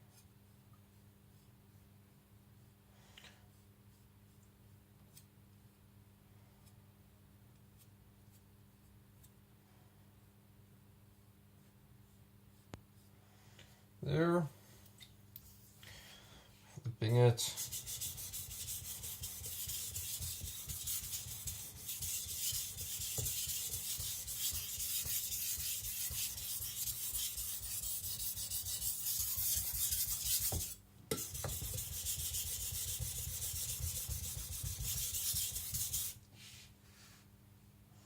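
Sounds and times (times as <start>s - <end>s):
knife scraping on wet whetstone: 17.6s - 36.2s.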